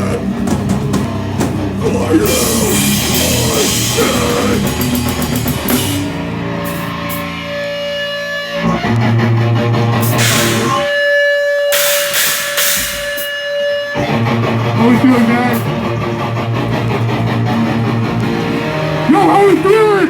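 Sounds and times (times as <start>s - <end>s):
drum kit: 0.0s - 7.4s, 10.0s - 10.9s, 11.7s - 13.3s
distorted electric guitars: 0.0s - 20.0s
guitar feedback: 0.0s - 20.0s.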